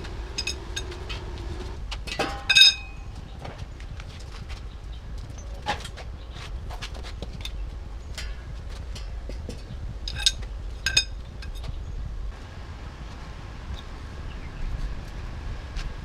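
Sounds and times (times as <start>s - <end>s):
low steady rumble: 0.0s - 16.0s
metal tools clinking: 0.3s - 1.0s, 2.0s - 3.4s, 7.3s - 11.8s.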